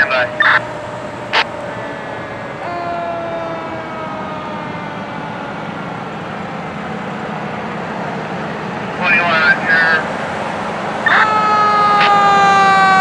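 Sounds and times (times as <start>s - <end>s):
mechanical siren winding down: 0.0s - 6.6s, 11.0s - 13.0s
engine and road rumble: 0.0s - 13.0s.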